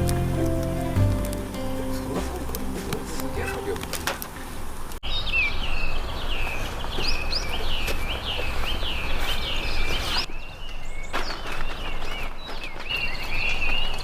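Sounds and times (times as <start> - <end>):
low outdoor noise: 0.0 - 14.0.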